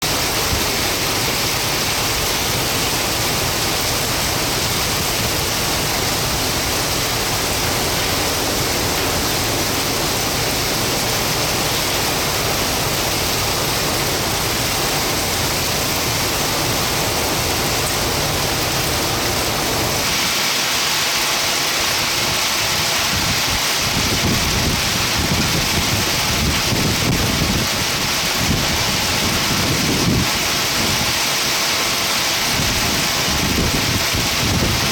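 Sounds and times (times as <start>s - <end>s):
low thunder rumbling: 0.0s - 20.1s
heavy rain downpour: 0.0s - 34.9s.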